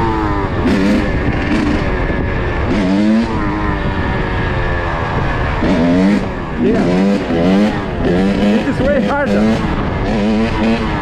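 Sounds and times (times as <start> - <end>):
dirt bike engine revving: 0.0 - 11.0
wind noise on microphone: 0.0 - 11.0.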